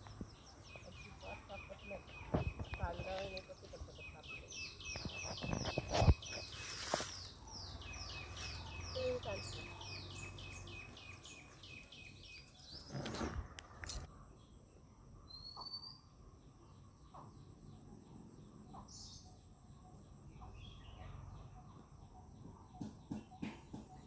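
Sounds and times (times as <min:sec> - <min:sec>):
small birds chirping: 0:00.0 - 0:24.0
brief rustle: 0:12.6 - 0:14.1.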